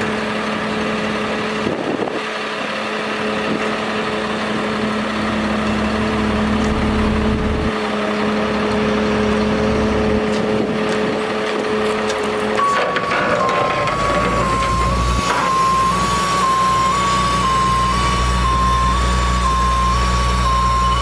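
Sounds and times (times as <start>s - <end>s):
truck engine idling: 0.0s - 21.0s.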